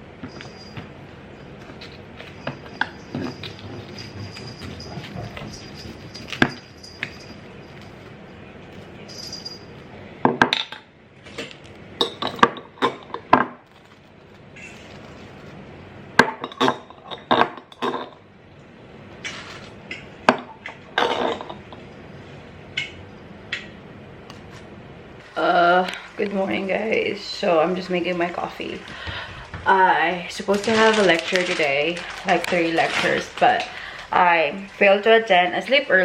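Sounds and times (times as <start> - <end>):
kitchenware clinking: 1.7 - 10.9, 12.0 - 13.6, 16.2 - 18.2, 19.3 - 21.9.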